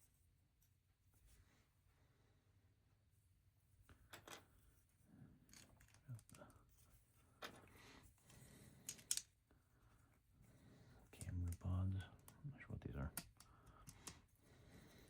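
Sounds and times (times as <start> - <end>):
plastic pieces clicking: 8.8 - 9.3.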